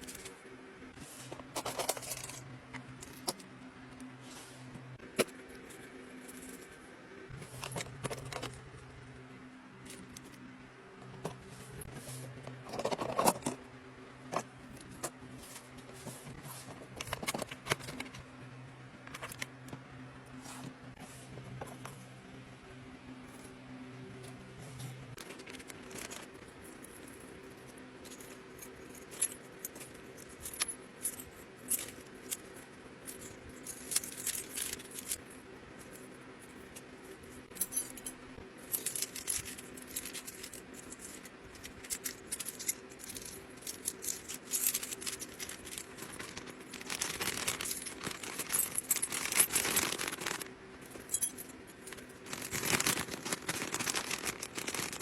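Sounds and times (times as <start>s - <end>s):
small hard items clinking: 1.4s - 3.5s, 14.3s - 18.2s, 25.2s - 35.2s, 37.5s - 55.0s
plastic packaging crinkling: 44.6s - 51.3s, 51.9s - 55.0s.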